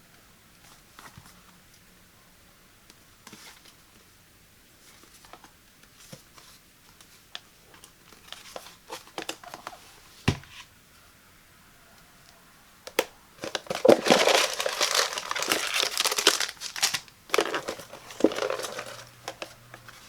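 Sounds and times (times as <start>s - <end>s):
packaging crinkling: 13.0s - 20.0s.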